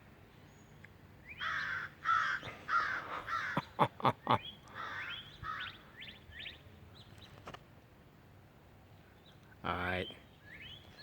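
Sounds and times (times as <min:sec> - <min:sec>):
crows cawing: 0:01.4 - 0:03.7, 0:04.7 - 0:05.8.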